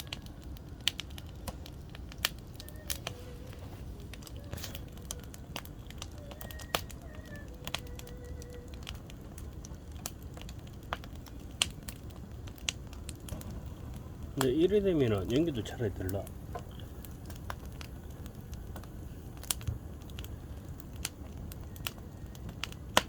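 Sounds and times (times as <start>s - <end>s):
campfire crackling and popping: 0.0s - 23.0s
faint wavering whistle: 6.1s - 8.9s.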